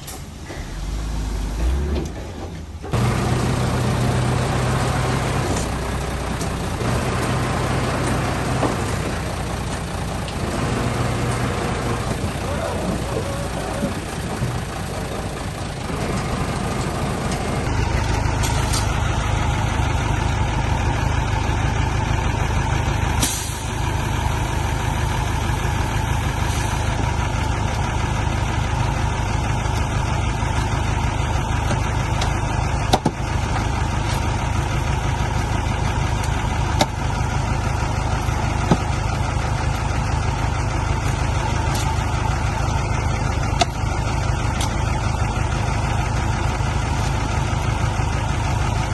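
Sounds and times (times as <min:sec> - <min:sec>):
brief hiss: 0:00.0 - 0:02.0
diesel engine rumbling: 0:00.0 - 0:48.9.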